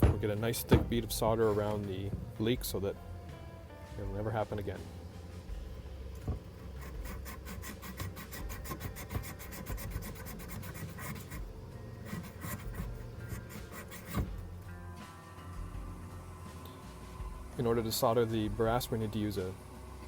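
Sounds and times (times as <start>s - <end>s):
abrasive scrubbing metal pipe: 0.0s - 3.2s, 4.0s - 14.6s.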